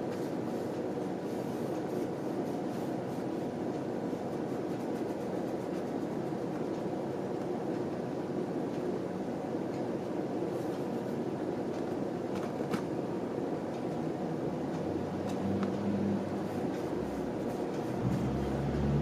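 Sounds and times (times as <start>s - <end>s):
train rumbling: 14.9s - 19.0s.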